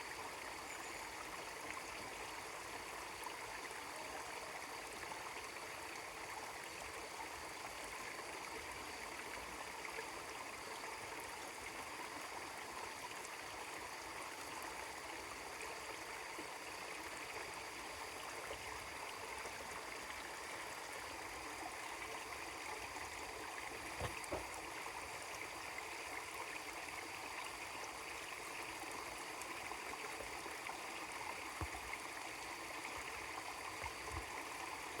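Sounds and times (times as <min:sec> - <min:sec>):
stream babbling over rocks: 0:18.8 - 0:35.0.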